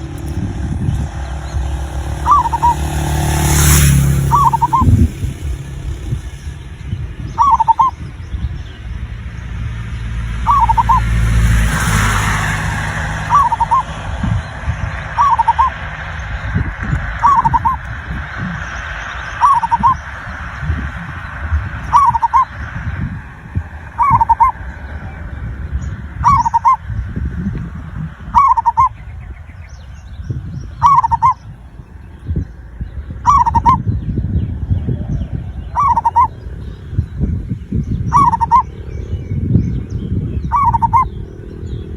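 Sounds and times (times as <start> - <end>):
dove cooing: 0.0 - 6.3, 7.4 - 8.0, 10.4 - 14.4, 15.0 - 16.0, 17.1 - 26.9, 27.5 - 29.0, 30.8 - 31.4, 33.2 - 33.9, 34.6 - 37.2, 38.0 - 39.2, 40.3 - 41.9
low rumble: 0.0 - 41.9.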